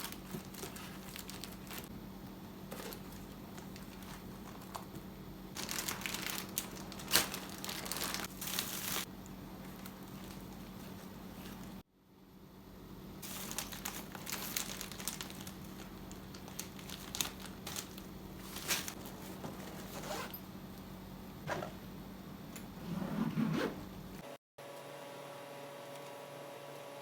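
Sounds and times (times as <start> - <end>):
rustling and crinkling handling: 0.0 - 2.0, 2.6 - 11.8, 13.2 - 20.4
steady low hum: 0.0 - 24.4.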